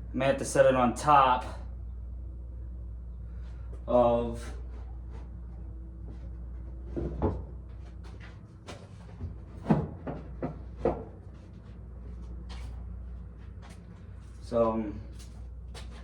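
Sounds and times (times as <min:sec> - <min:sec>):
steady low hum: 0:00.0 - 0:16.0
fan knocks and clunks: 0:04.5 - 0:11.8.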